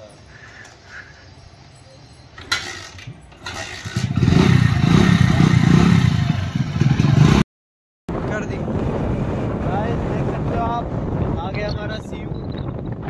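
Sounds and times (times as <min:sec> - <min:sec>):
motorcycle engine running loudly: 0:02.4 - 0:07.4.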